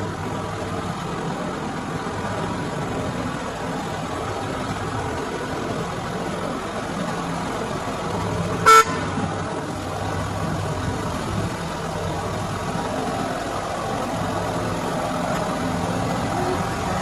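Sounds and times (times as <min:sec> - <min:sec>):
car engine idling: 0:00.0 - 0:17.0
car horn toot: 0:08.6 - 0:09.2.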